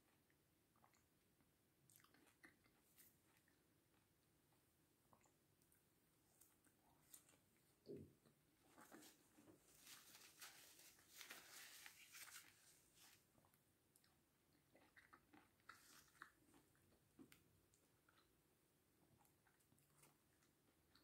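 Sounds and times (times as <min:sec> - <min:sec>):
crunchy chewing: 0:01.9 - 0:04.2, 0:13.4 - 0:17.4.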